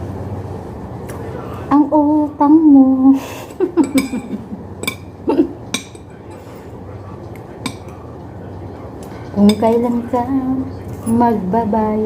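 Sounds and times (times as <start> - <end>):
low room hum: 0.0 - 12.0
cutlery clinking on a plate: 3.8 - 6.8, 7.6 - 8.0, 9.0 - 10.2.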